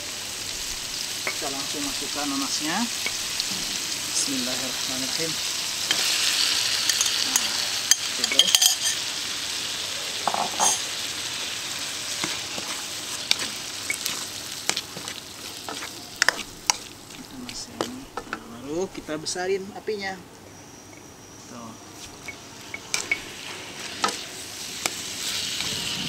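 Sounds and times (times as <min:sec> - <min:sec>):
food sizzling in hot oil: 0:00.0 - 0:19.4, 0:21.9 - 0:26.0
spatula scraping a wok: 0:12.0 - 0:17.0.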